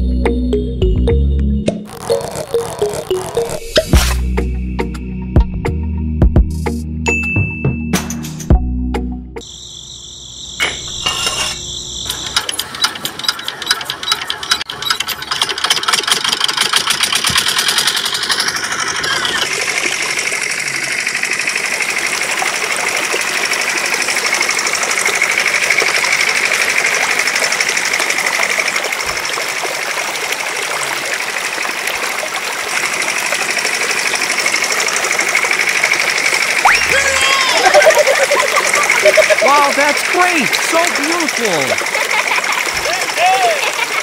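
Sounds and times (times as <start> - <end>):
toy water pump rattling: 12.1 - 44.0.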